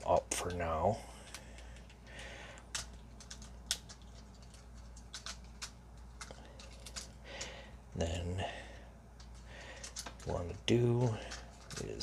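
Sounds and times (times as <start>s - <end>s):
plastic parts scraping: 1.3s - 7.5s, 9.2s - 12.0s
plastic toy parts clicking: 2.6s - 7.2s.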